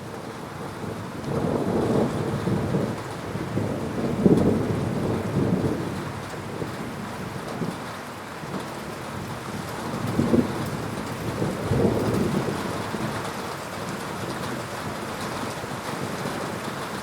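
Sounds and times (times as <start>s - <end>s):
heavy rain: 0.0s - 17.0s
thunder rumbling: 0.8s - 7.8s, 9.1s - 13.3s.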